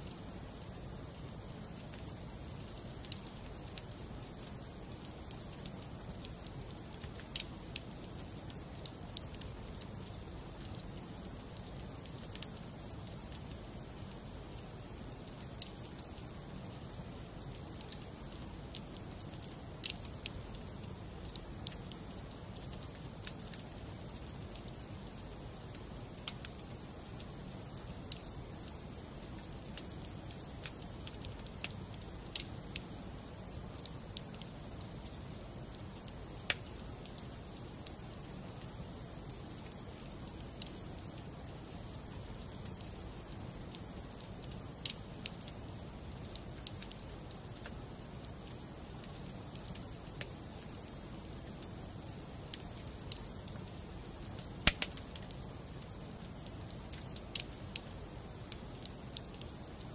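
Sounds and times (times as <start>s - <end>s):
wood fire crackling: 0.0s - 59.9s
flames rushing: 54.3s - 55.3s.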